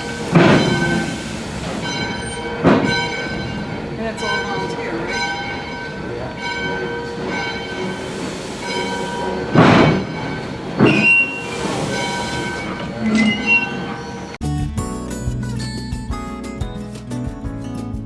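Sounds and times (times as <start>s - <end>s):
steam hissing: 0.0s - 5.0s, 6.0s - 14.3s
steam train high squeal: 0.0s - 14.4s.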